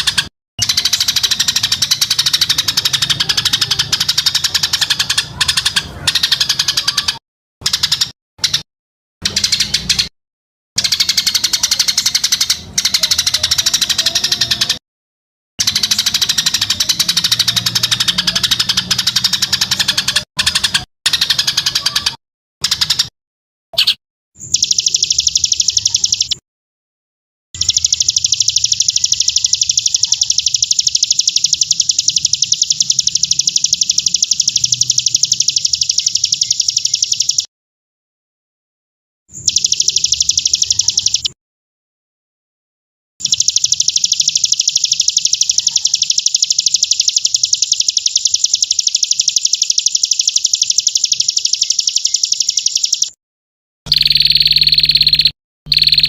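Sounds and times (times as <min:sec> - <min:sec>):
bird's fast high trill: 0:53.9 - 0:56.0.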